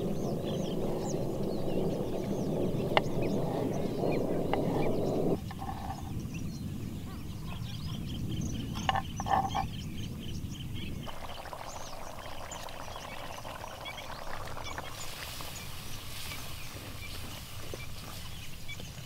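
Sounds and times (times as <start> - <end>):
low rumble: 0.0 - 7.1
birds chirping: 0.0 - 19.0.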